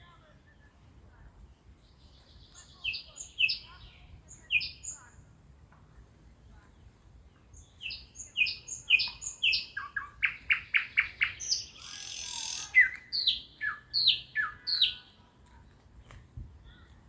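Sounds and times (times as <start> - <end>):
nightingale singing: 1.4 - 5.2, 6.8 - 15.2.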